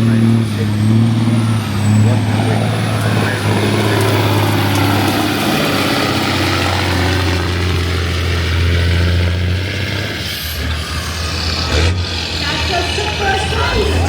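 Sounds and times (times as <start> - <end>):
diesel truck engine running: 0.0 - 14.0.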